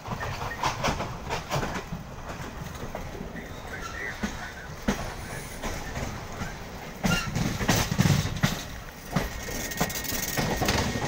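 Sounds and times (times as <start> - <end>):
steady train rumble: 0.0 - 11.0
train wheels clacking on rails: 0.0 - 11.0.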